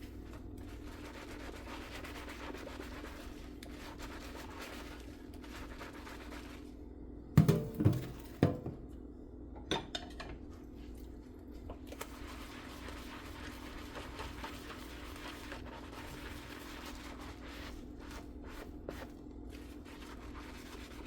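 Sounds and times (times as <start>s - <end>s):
dish washing noise: 7.4s - 8.8s.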